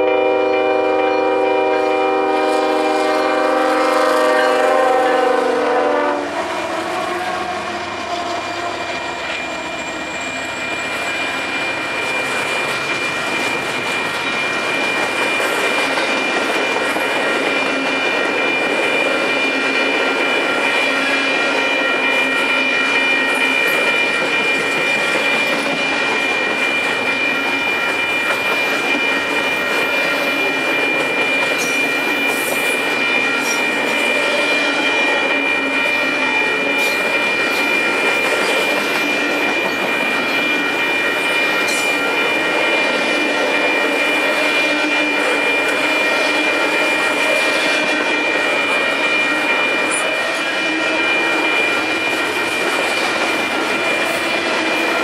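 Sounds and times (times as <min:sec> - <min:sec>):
steel wheels rumbling on rail: 0:00.0 - 0:55.0.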